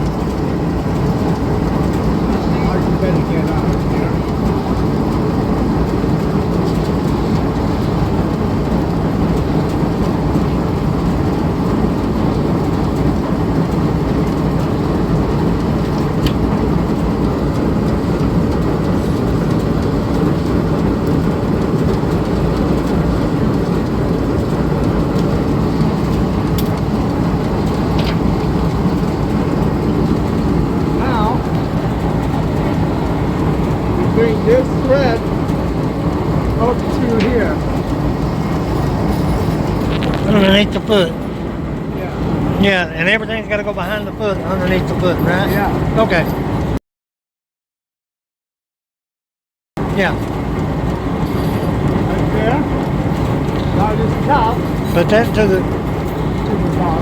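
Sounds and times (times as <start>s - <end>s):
steady low rumble: 0.0s - 46.8s, 49.8s - 57.0s.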